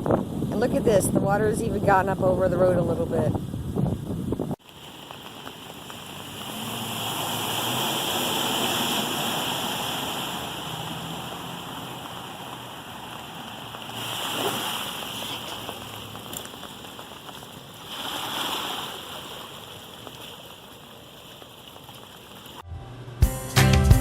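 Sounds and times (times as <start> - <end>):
tyres splashing through water: 4.6 - 22.6
low engine hum: 5.0 - 14.0.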